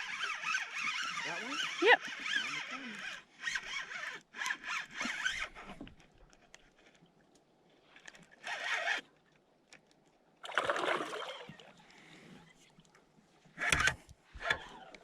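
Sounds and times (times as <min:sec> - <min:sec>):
paddle splashing in water: 0:10.4 - 0:12.7.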